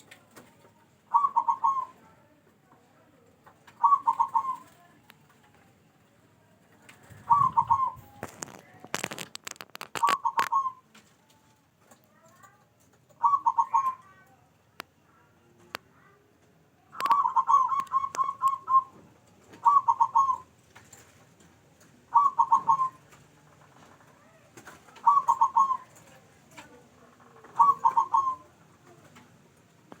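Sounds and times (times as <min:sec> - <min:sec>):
dove cooing staccato notes: 0:01.1 - 0:02.1, 0:03.7 - 0:05.0, 0:06.9 - 0:08.4, 0:09.9 - 0:11.0, 0:13.1 - 0:14.2, 0:16.9 - 0:20.5, 0:22.0 - 0:26.8, 0:27.4 - 0:29.2.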